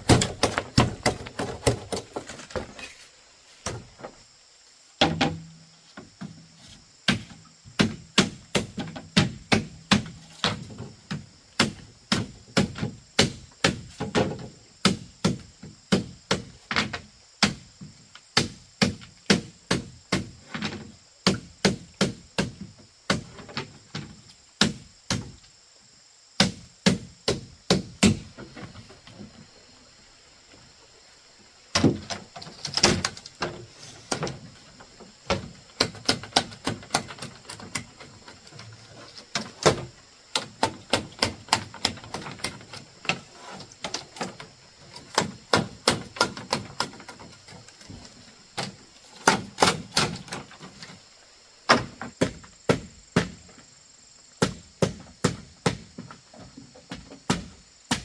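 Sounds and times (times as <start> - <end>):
hand tool striking bamboo: 0.0 - 2.9, 7.0 - 17.7, 18.4 - 23.5, 24.6 - 25.4, 26.4 - 28.3, 35.3 - 38.6, 39.3 - 48.0, 48.6 - 50.6, 56.9 - 58.0.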